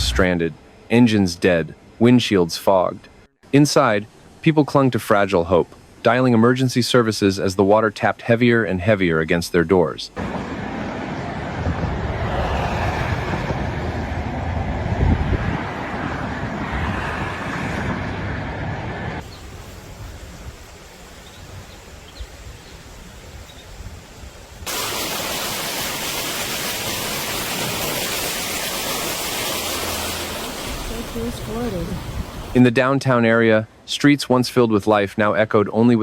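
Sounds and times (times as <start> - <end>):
heavy rain and floodwater rushing: 19.2 - 32.7.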